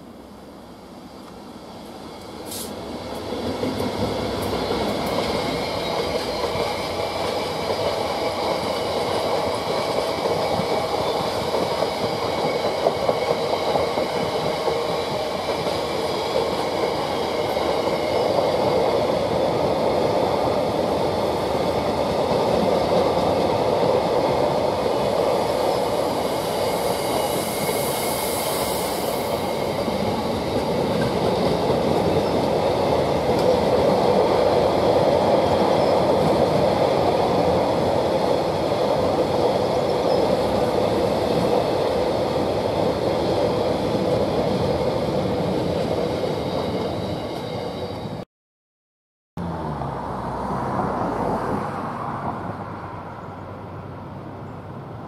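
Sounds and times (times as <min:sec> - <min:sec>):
freight train wheels rumbling: 0:00.0 - 0:48.2.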